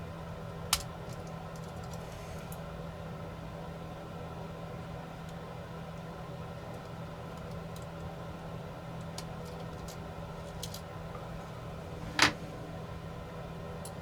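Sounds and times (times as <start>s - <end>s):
steady low hum: 10.5s - 14.0s.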